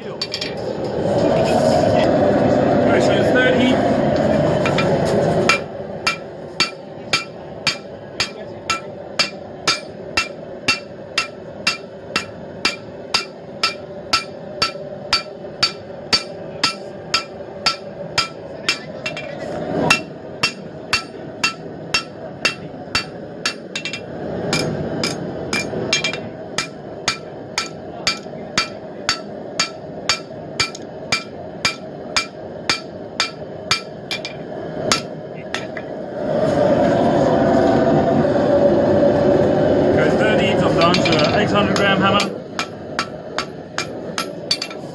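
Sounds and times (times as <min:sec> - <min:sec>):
hammer striking steel on anvil: 0:05.5 - 0:35.9, 0:40.8 - 0:44.9.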